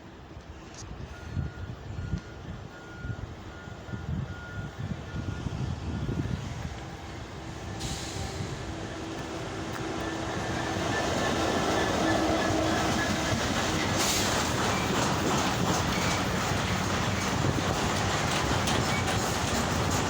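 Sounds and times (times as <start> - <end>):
goods train rumbling: 0.1 - 20.0
sharp rushing hiss: 7.6 - 18.0.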